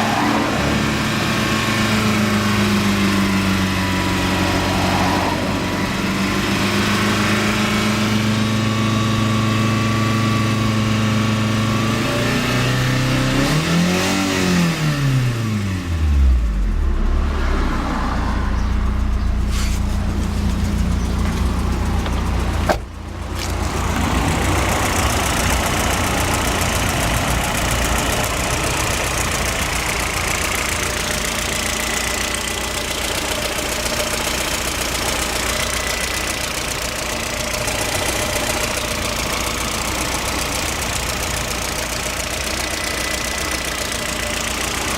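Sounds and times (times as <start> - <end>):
engine revving: 0.0 - 44.9
car engine running with knock: 18.6 - 44.9.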